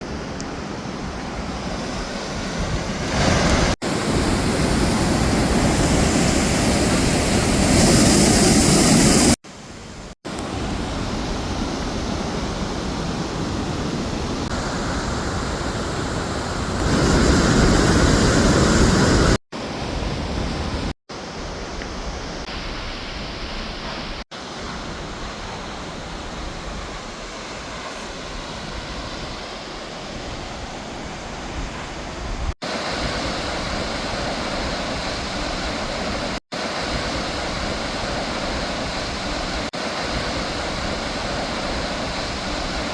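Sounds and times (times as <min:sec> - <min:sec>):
waterfall roaring: 0:10.3 - 0:42.9.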